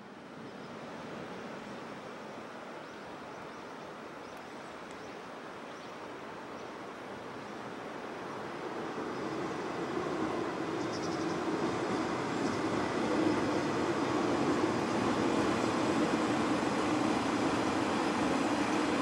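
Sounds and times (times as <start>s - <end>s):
steady rushing outdoor noise: 0.0s - 19.0s
approaching diesel railcar: 7.3s - 19.0s.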